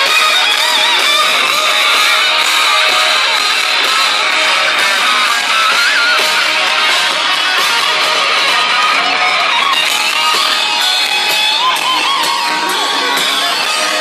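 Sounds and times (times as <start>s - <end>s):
bending lead guitar: 0.0s - 14.0s
hard rock band playing: 0.0s - 14.0s.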